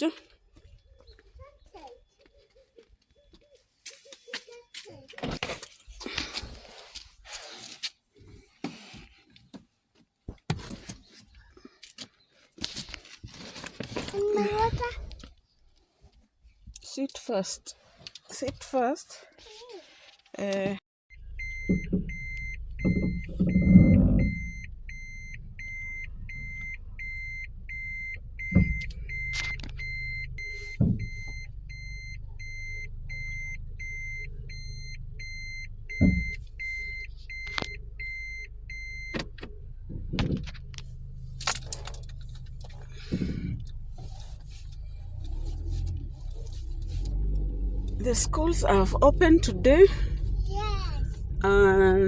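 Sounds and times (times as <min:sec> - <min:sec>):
car warning chime beeping: 0:21.1 - 0:39.3
car engine humming: 0:21.2 - 0:52.0.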